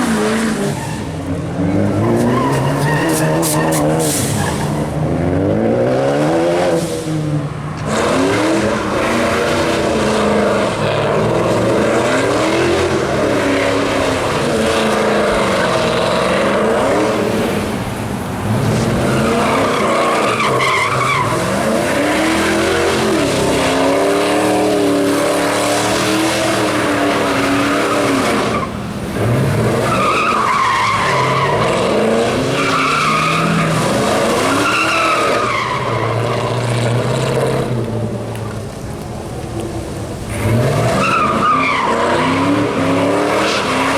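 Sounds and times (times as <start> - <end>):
tyres squealing: 0.0 - 4.9, 10.7 - 36.5
car engine revving: 0.0 - 43.9.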